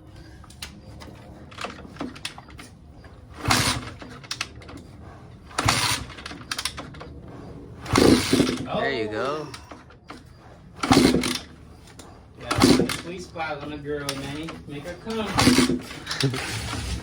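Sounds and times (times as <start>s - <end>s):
dirt bike engine turning over: 1.1s - 7.1s, 7.8s - 17.0s.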